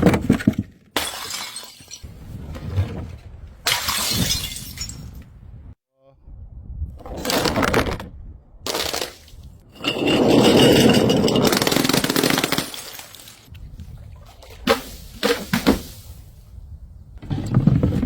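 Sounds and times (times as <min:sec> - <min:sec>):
glass smashing: 0:03.7 - 0:05.2.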